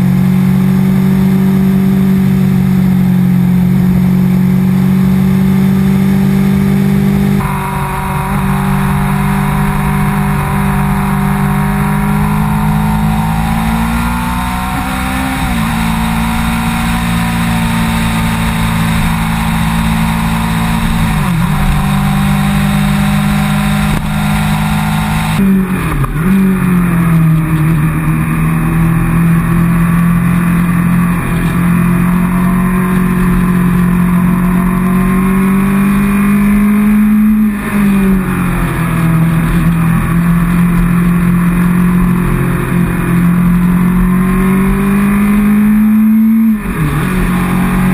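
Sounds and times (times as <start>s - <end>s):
motorcycle engine running: 0.0s - 47.9s
wind noise: 7.3s - 26.0s.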